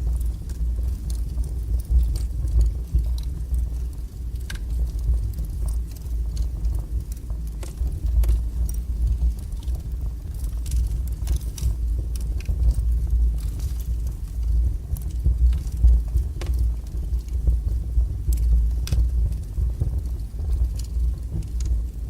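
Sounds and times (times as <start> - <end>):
fire flames rumbling: 0.0 - 22.0
wood crackling and popping: 0.0 - 22.0.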